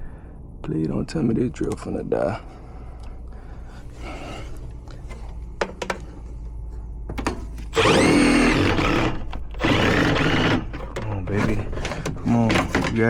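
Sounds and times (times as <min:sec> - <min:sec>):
cordless drill driving a screw: 0:07.7 - 0:10.9.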